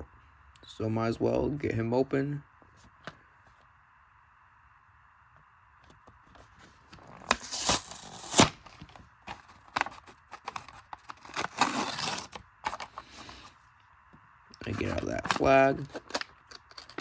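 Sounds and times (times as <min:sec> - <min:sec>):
blister pack tearing and crinkling: 0:07.1 - 0:08.6, 0:09.3 - 0:13.2.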